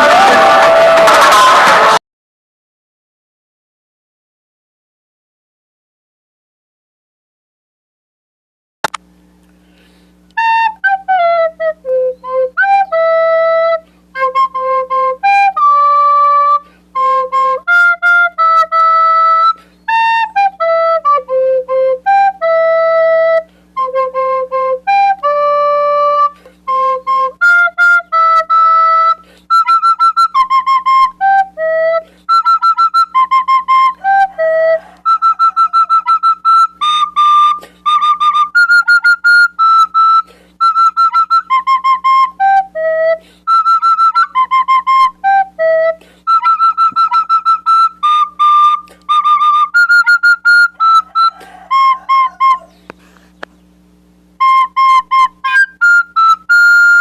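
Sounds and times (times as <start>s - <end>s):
recorder playing melody: 0.0s - 2.0s, 10.3s - 53.2s, 54.3s - 57.0s
click: 8.8s - 9.6s
faint steady hum: 8.9s - 57.0s.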